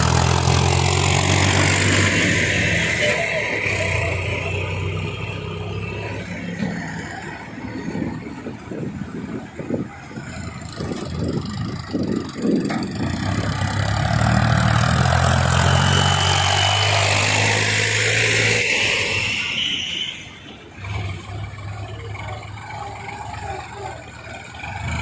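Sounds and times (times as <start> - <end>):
tractor diesel engine under load: 0.0 - 25.0.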